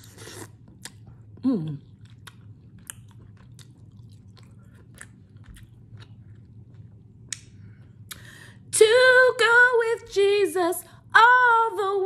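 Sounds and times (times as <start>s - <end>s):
person chewing food: 0.0s - 8.2s.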